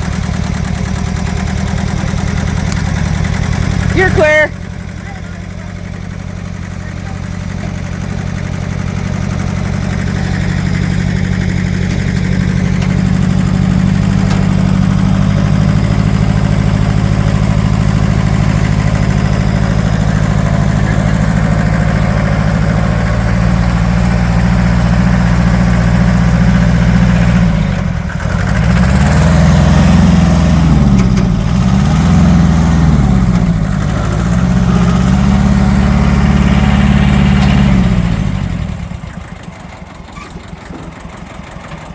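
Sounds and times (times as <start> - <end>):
tractor engine under load: 0.0 - 41.9.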